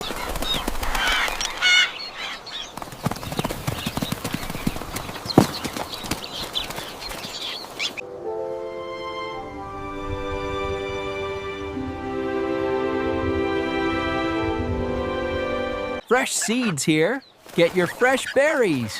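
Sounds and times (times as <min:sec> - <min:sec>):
chirping bird calls: 0:00.0 - 0:08.0, 0:16.0 - 0:18.9.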